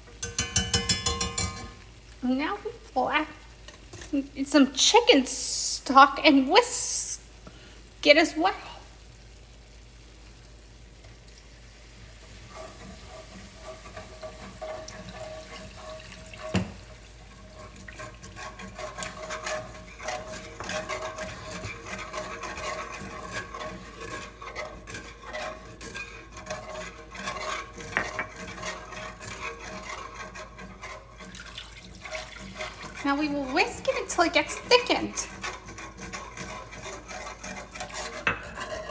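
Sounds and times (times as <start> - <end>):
whisk knocking against pan: 0.0 - 1.9, 12.2 - 38.9
whisk scraping in a pan: 0.0 - 2.2, 3.5 - 6.0, 10.7 - 38.9.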